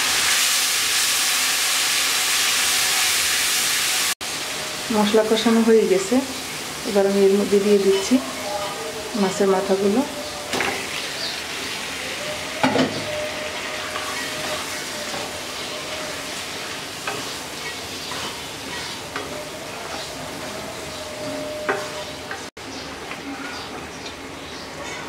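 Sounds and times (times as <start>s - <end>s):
fish sizzling in hot oil: 0.0s - 22.5s
wooden spatula scraping a wok: 13.0s - 22.5s.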